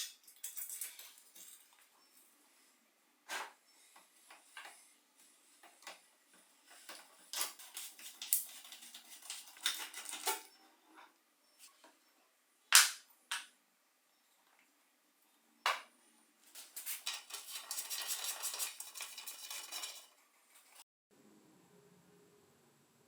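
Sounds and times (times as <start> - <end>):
metal tools clinking: 0.0 - 2.0.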